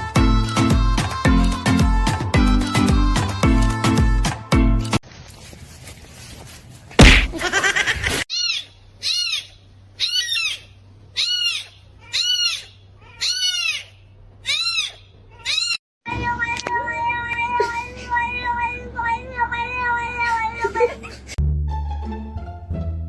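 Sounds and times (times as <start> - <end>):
loud thump: 7.0 - 7.4
kitten meowing: 11.2 - 13.8, 14.4 - 15.8.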